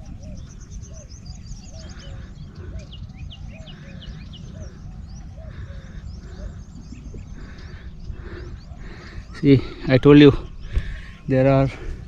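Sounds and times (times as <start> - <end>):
lower repeated bird call: 0.0 - 11.2.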